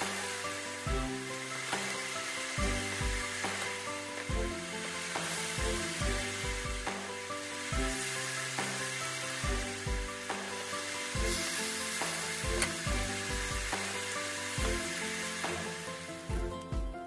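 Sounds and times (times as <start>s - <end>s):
fritters sizzling in skillet: 0.0s - 16.5s
background music with beat: 0.0s - 17.0s.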